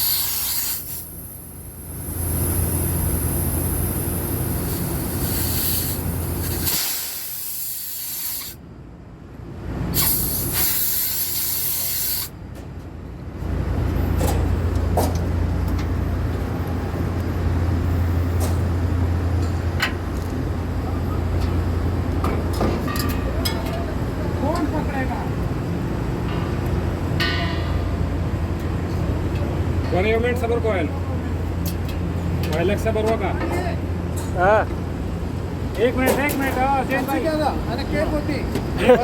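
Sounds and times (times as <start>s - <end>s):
pressurised gas hissing: 0.0s - 8.6s, 9.9s - 12.4s.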